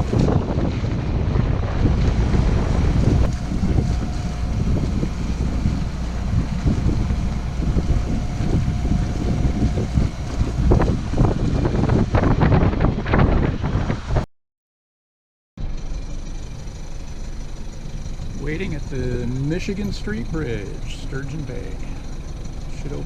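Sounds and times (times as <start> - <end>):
low rumble of wind and water: 0.0 - 14.2, 15.6 - 23.0
wind buffeting microphone: 0.0 - 14.3.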